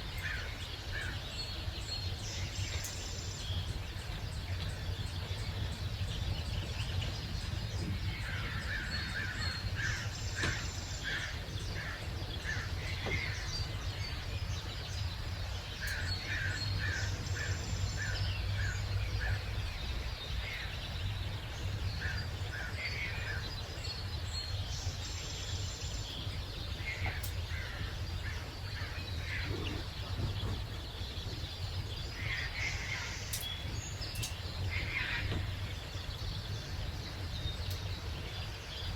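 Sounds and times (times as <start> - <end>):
low background rumble: 0.0 - 38.9
wild birds calling: 0.0 - 38.9.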